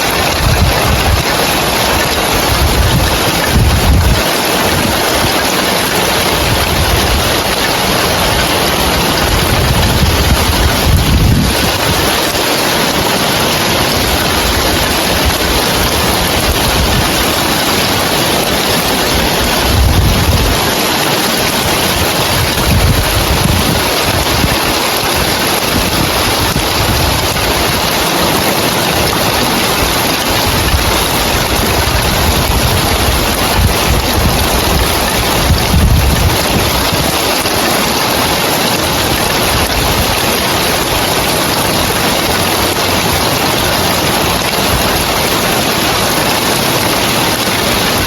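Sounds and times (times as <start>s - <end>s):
heavy rain on roof tiles: 0.0s - 48.0s
wind gusting on microphone: 0.0s - 48.0s.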